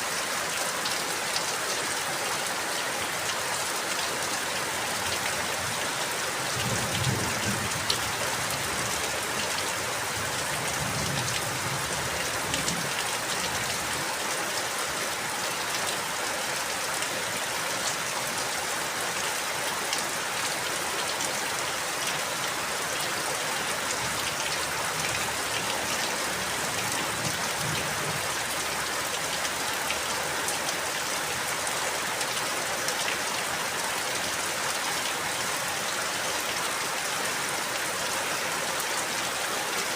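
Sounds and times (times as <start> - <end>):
steady rain hiss: 0.0 - 39.9
raindrops ticking on a surface: 23.4 - 33.5.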